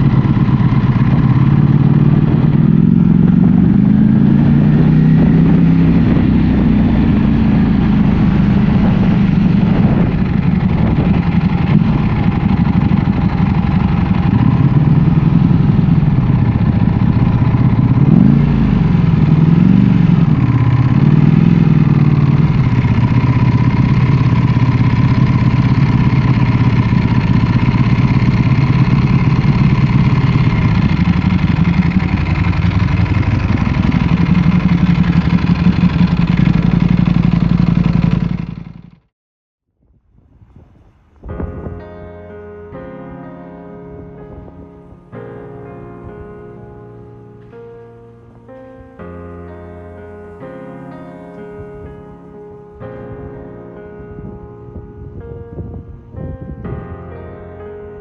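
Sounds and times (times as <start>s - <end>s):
motorcycle engine running: 0.0s - 39.1s, 49.8s - 52.4s.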